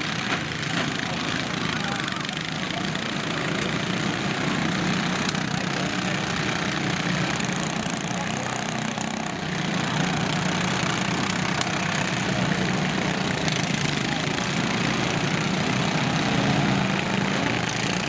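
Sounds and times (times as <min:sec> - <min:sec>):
lawn tractor engines running: 0:00.0 - 0:18.0.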